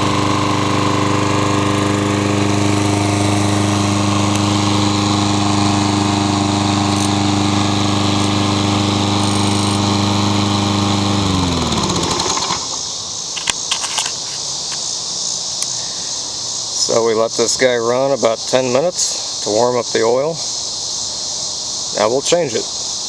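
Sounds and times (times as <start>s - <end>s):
engine winding down: 0.0s - 13.0s
lawn mower engine running: 0.0s - 14.4s.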